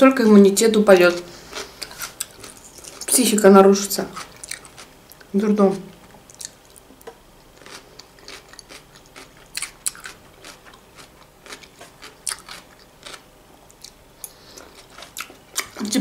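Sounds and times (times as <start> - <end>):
person chewing food: 1.4 - 3.2, 4.1 - 5.3, 6.2 - 15.9.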